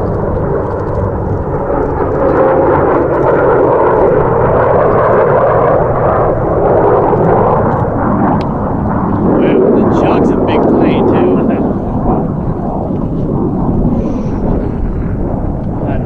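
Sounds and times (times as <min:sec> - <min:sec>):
loud jet engine noise: 0:00.0 - 0:16.0.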